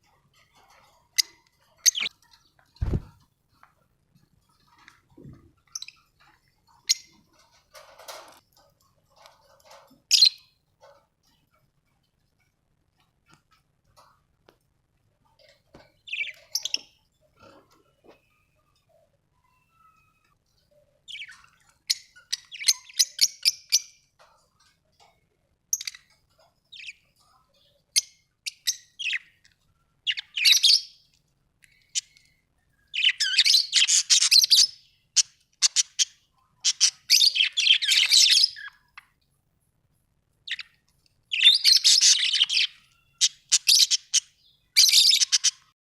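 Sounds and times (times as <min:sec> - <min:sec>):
budgerigars chirping and warbling: 0:00.6 - 0:03.1, 0:15.5 - 0:18.8, 0:21.0 - 0:24.3, 0:25.8 - 0:29.4, 0:30.0 - 0:31.0, 0:31.8 - 0:32.2, 0:32.8 - 0:39.0, 0:40.5 - 0:45.7.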